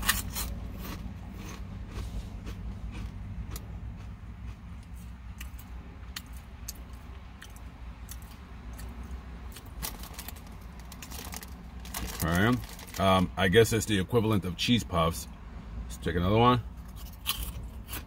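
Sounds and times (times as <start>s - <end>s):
crunchy snack being chewed: 0.0s - 13.0s, 16.9s - 18.0s
steady low hum: 0.0s - 18.0s.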